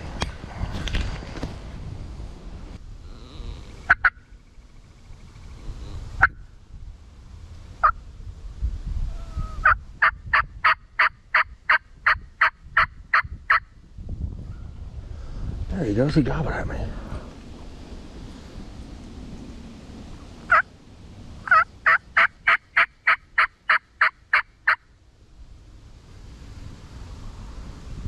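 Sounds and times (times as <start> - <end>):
turkey call yelps: 3.9 - 4.2, 9.1 - 11.8, 20.5 - 20.7, 21.5 - 24.8.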